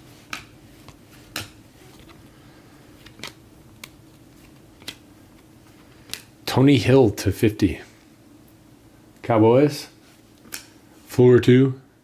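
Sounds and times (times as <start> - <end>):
trading cards snapping: 0.2 - 0.6, 1.3 - 1.6, 3.0 - 5.0.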